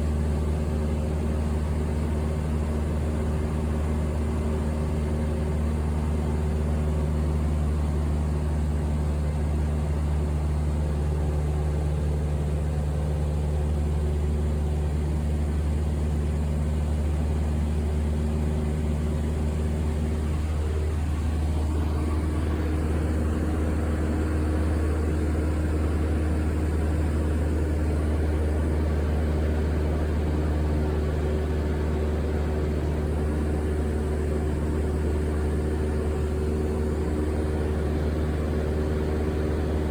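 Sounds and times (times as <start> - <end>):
airliner cabin drone: 19.1 - 39.9.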